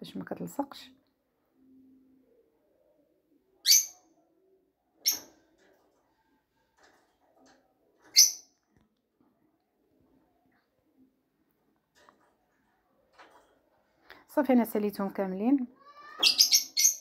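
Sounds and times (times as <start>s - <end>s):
bird chirping: 16.0s - 17.0s.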